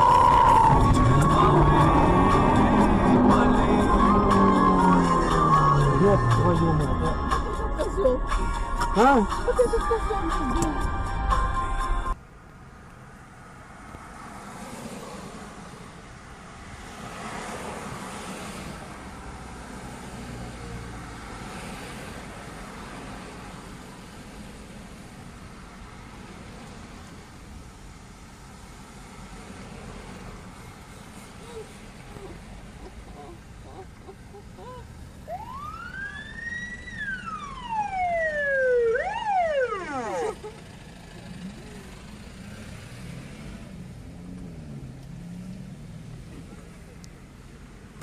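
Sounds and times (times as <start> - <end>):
emergency siren wailing: 0.0 - 7.8, 33.2 - 40.8
road traffic rumble: 0.0 - 48.0
vehicles passing: 0.0 - 48.0.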